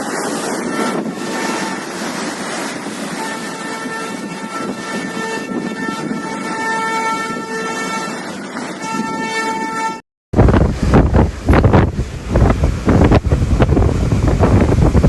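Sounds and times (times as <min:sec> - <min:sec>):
steady rushing noise: 0:00.0 - 0:08.8, 0:10.4 - 0:15.0
waves crashing: 0:00.0 - 0:15.0
wind buffeting the microphone: 0:00.0 - 0:15.0
horn tone in held notes: 0:00.5 - 0:02.0, 0:03.1 - 0:10.0.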